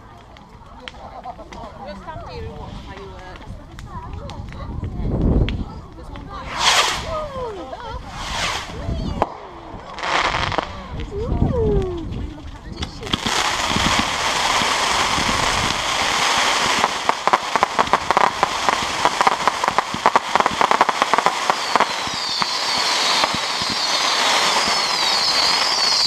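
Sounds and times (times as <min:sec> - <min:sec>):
fireworks rapid crackling: 0:00.0 - 0:26.0
fireworks rumble and hiss: 0:00.0 - 0:26.0
fireworks whistles: 0:06.4 - 0:09.3, 0:13.2 - 0:26.0.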